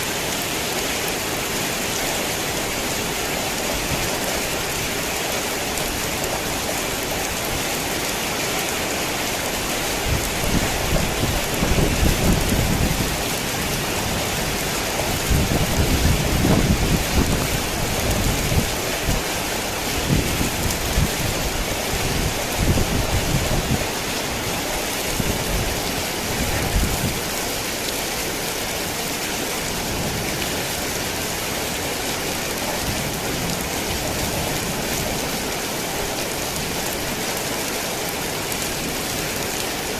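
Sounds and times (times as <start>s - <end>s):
heavy rain falling: 0.0s - 39.9s
low rolling thunder: 10.0s - 19.3s.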